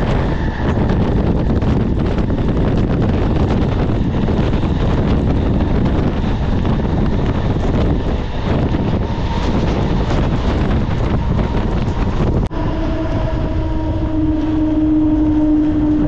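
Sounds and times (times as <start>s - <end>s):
train wheels rumbling on track: 0.0s - 16.0s
wind buffeting microphone: 0.0s - 16.0s.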